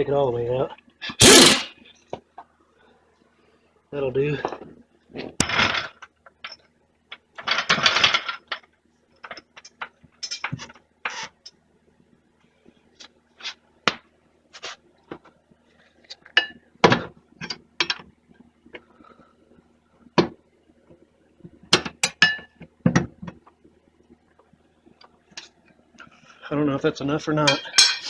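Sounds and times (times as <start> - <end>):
metal parts clinking and knocking: 1.2 - 1.7
metal tools rattling: 1.2 - 1.7.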